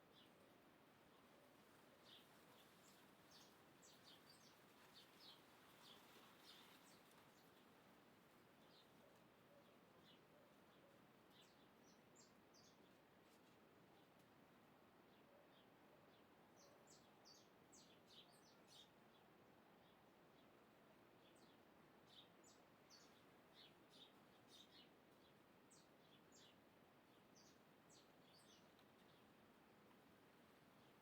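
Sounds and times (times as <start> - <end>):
faint birds chirping: 0.0 - 31.0
steady background hiss: 0.0 - 31.0.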